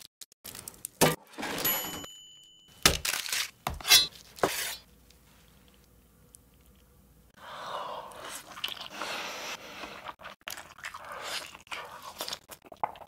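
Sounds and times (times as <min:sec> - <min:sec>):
chewing with crackles: 0:09.8 - 0:13.0.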